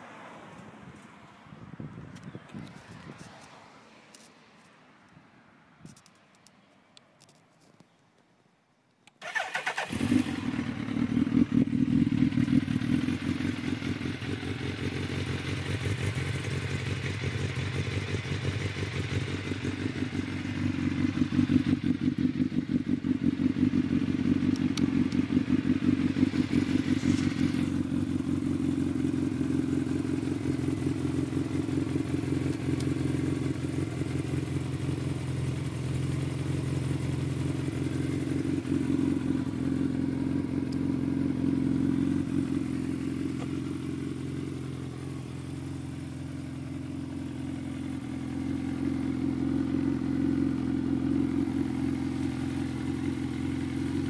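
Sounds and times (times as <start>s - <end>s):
motorcycle electric starter: 9.2s - 10.4s
motorcycle engine idling: 9.2s - 54.0s.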